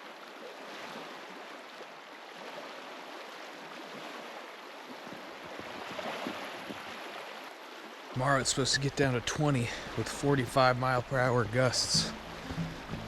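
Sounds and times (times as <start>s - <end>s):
small waves lapping at shore: 0.0s - 13.0s.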